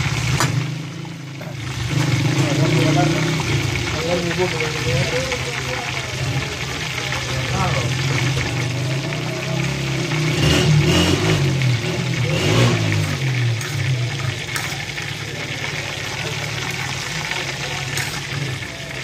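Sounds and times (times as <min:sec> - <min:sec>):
busy shop background din: 0:00.0 - 0:19.0.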